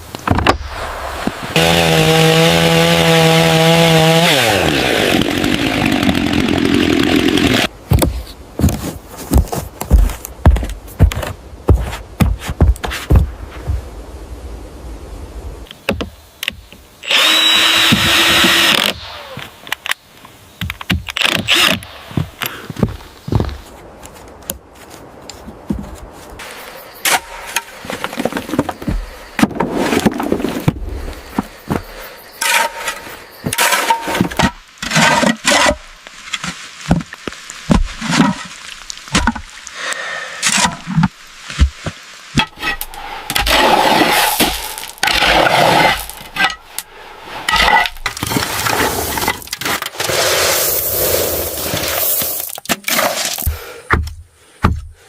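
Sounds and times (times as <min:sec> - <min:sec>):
knocks and cracks: 0:27.9 - 0:39.6
scraping noise: 0:42.4 - 0:53.5.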